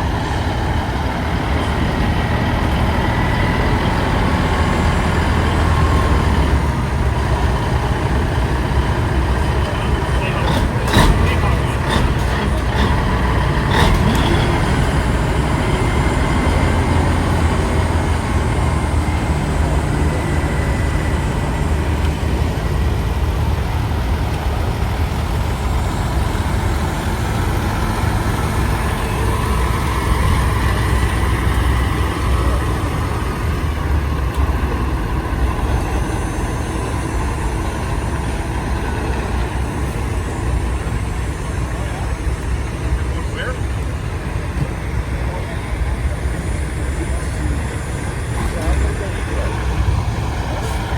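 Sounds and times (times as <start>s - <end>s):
diesel truck engines rumbling: 0.0s - 50.9s.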